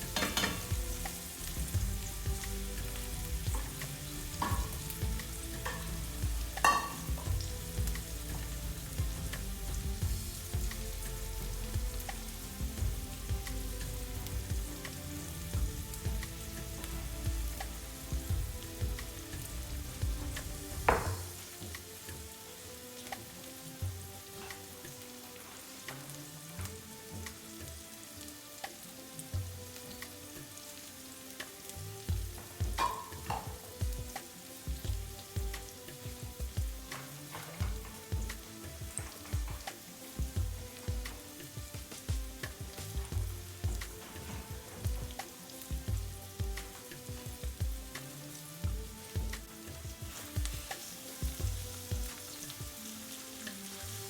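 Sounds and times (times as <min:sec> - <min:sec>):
utensil stirring food: 0:00.0 - 0:28.0, 0:28.6 - 0:54.0
food sizzling in a pan: 0:00.0 - 0:54.0
sharp metal clanks: 0:06.6 - 0:07.2.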